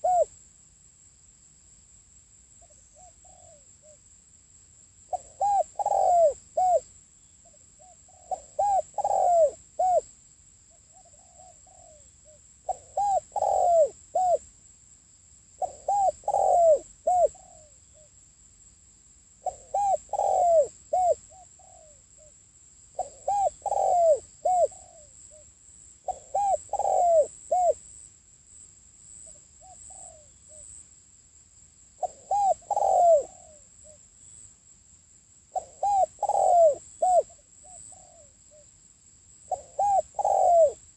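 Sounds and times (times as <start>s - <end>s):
dove cooing: 0.0s - 0.3s, 3.0s - 4.0s, 5.1s - 6.8s, 7.8s - 10.0s, 10.9s - 14.4s, 15.6s - 18.1s, 19.4s - 22.3s, 23.0s - 25.4s, 26.0s - 27.8s, 29.6s - 30.7s, 32.0s - 34.0s, 35.5s - 38.6s, 39.5s - 40.9s.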